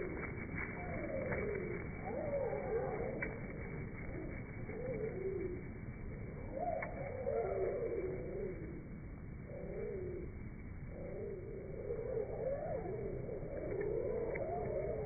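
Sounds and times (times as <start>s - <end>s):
slowed-down bird chirps: 0.0s - 15.0s.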